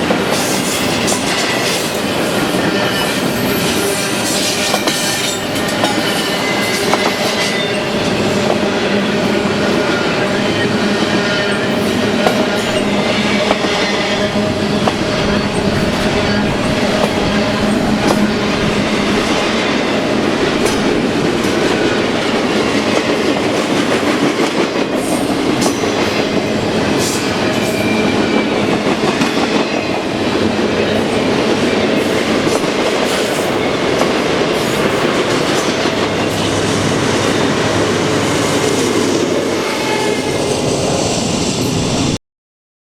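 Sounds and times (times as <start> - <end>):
train wheels clattering over rail joints: 0.0 - 8.6, 11.1 - 37.5.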